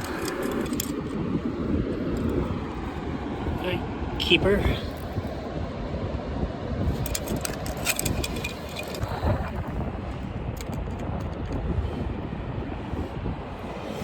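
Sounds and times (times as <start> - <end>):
small sharp clicks and rattles: 0.0 - 1.2, 2.1 - 2.5, 6.9 - 9.3, 10.6 - 11.6
wind buffeting microphone: 0.0 - 14.0.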